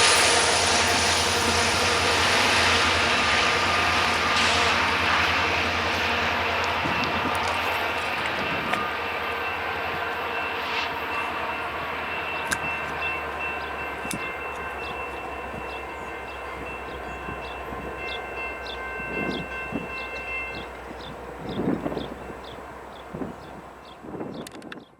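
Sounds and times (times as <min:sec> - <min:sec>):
high squeal: 0:00.0 - 0:06.9
freight train rumbling past: 0:00.0 - 0:24.4.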